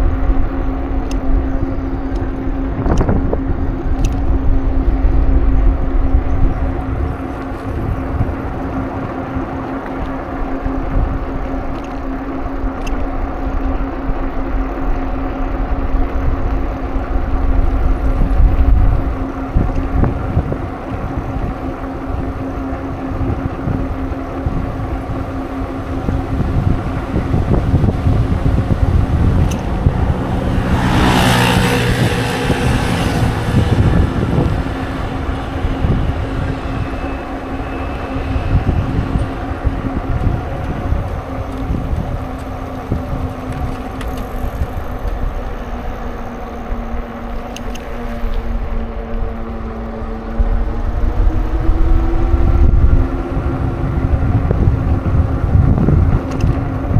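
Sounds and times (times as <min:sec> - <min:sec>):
wind rumble on microphone: 0:00.0 - 0:56.9
car passing close by: 0:17.1 - 0:47.0.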